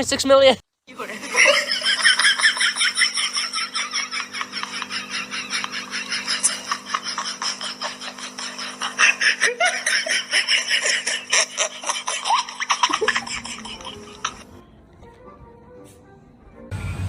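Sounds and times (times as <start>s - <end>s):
steady low hum: 0.9s - 15.0s
laughter in bursts: 1.0s - 14.5s.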